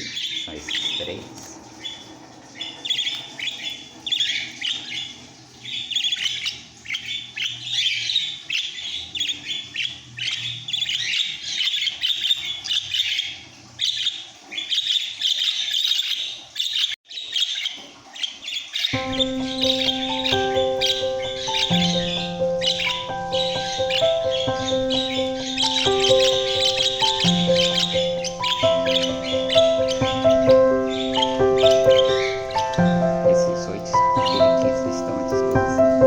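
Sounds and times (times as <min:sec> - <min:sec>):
budgerigars chattering and chirping: 0:00.0 - 0:36.0
music: 0:19.0 - 0:36.0.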